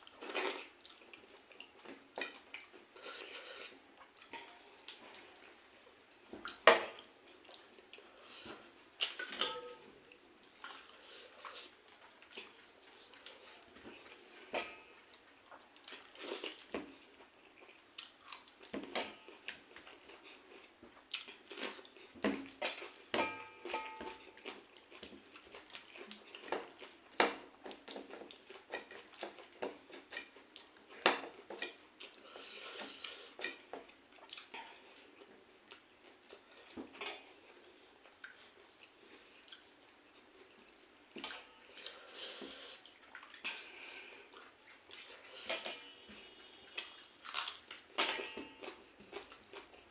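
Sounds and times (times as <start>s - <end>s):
chewing: 10.1s - 23.0s, 24.2s - 49.9s
clinks and taps on dishes: 22.7s - 24.2s.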